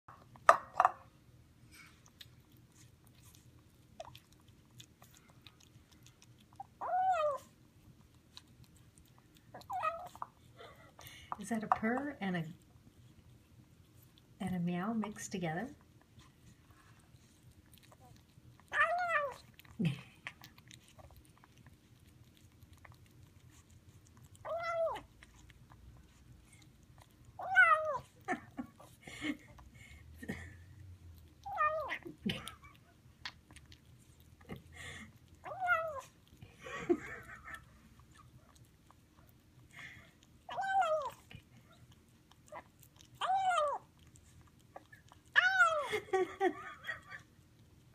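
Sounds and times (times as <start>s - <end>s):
kitten chewing food: 0.1s - 47.9s
kitten meowing: 24.5s - 25.1s.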